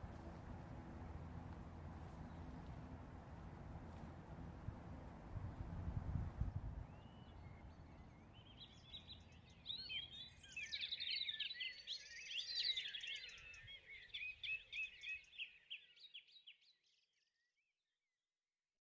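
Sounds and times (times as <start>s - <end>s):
songbirds singing: 0.0s - 4.4s, 6.3s - 17.0s
faint low rumble: 0.0s - 9.9s.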